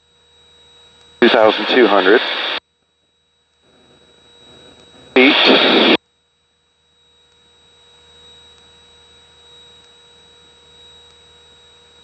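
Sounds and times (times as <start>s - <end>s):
electrical hum with high whine: 0.6s - 2.6s, 3.4s - 6.0s.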